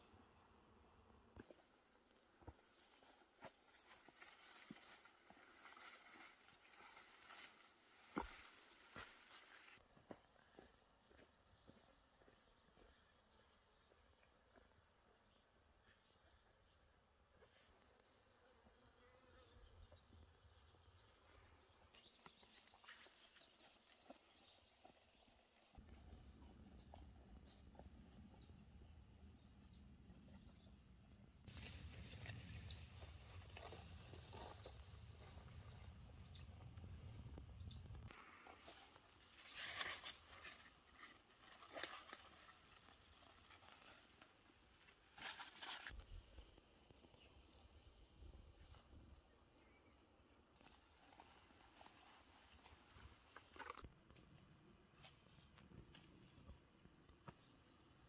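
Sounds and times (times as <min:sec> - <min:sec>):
faint rustling and crunching: 0:01.4 - 0:10.2, 0:31.4 - 0:58.0
low rumble: 0:32.0 - 0:38.1.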